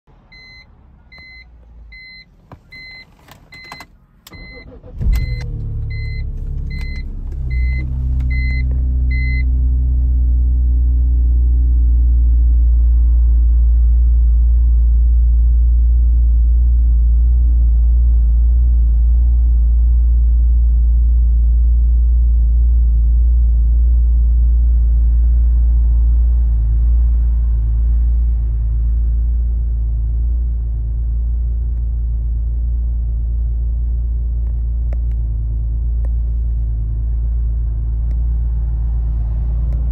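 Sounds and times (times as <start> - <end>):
car engine starting and idling: 0.1 - 39.9
car warning chime beeping: 0.3 - 9.5.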